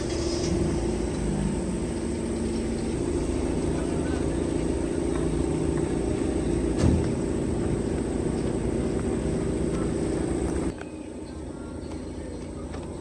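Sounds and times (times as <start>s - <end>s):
steady mechanical hum: 0.0s - 13.0s
short thump: 6.7s - 7.2s.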